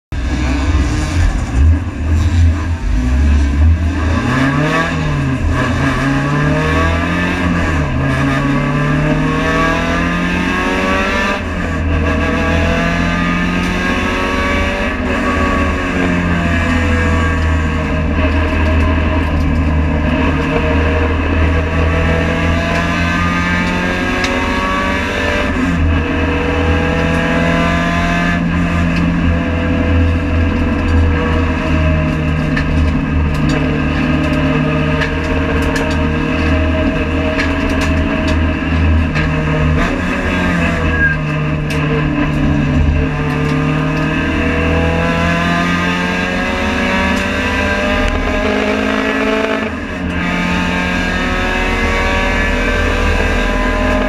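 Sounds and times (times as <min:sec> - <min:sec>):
race car engine at full throttle: 0:00.0 - 0:54.0
road and wind noise: 0:00.1 - 0:54.0.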